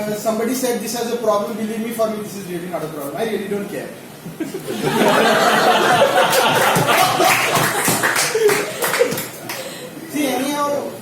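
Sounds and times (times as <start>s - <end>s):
audience laughing: 4.4s - 9.8s
audience clapping: 4.9s - 9.8s.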